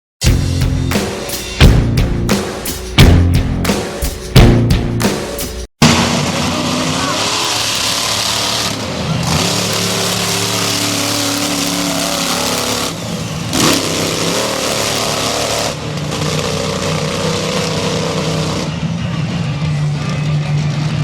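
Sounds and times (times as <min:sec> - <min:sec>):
monster truck engine revving: 0:05.8 - 0:21.0.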